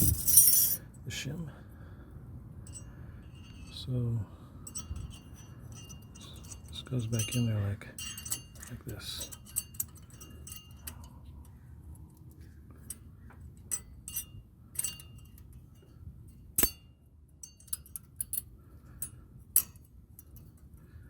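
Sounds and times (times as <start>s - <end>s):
light metallic clicks and clinks: 0.0s - 0.8s, 2.7s - 21.0s
sharp metal clicks: 13.6s - 15.6s, 16.5s - 16.8s.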